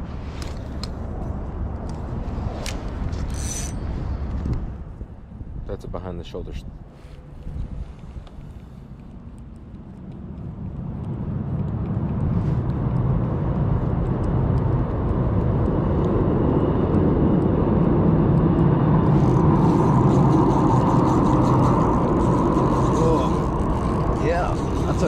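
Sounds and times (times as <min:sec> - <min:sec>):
motor vehicle engine rumble: 0:06.7 - 0:25.0.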